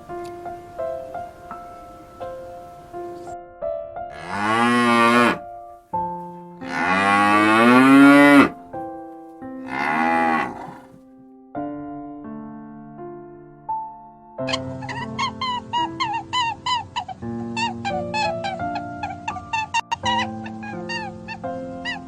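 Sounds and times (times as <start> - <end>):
soft piano music: 0.0 - 22.0
cow mooing: 4.1 - 5.4, 6.6 - 8.6, 9.6 - 11.0.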